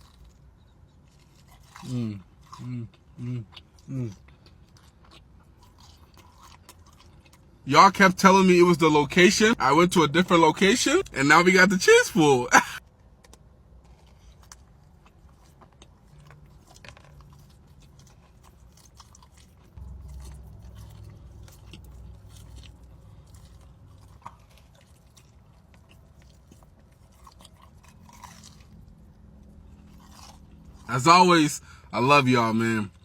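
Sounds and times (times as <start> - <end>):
person chewing food: 0.0 - 7.6, 13.2 - 30.9
low steady hum: 16.8 - 33.0.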